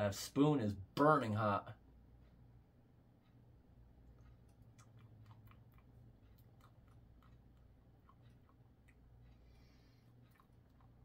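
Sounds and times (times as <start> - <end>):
low steady hum: 0.0 - 11.0
person chewing wet clicks: 3.9 - 11.0.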